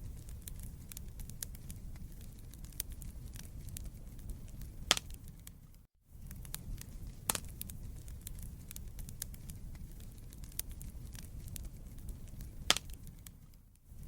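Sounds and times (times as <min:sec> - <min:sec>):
fire crackles and snaps: 0:00.0 - 0:14.0
low rumble of flames: 0:00.0 - 0:14.0
loud sharp fire pop: 0:04.9 - 0:05.2, 0:12.7 - 0:13.0.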